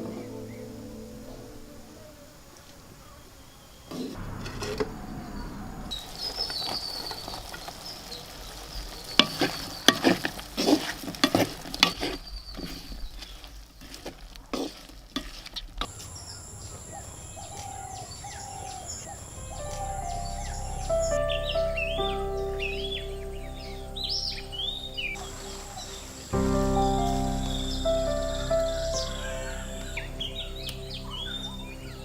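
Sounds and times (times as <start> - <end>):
birds chirping: 15.9 - 32.0.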